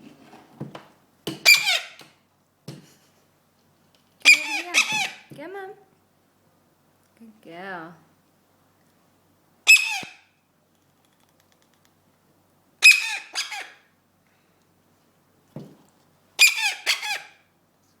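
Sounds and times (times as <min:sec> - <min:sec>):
parrot chick squawking: 0:01.4 - 0:02.0, 0:04.2 - 0:05.3, 0:09.6 - 0:10.4, 0:12.8 - 0:13.9, 0:16.4 - 0:17.4.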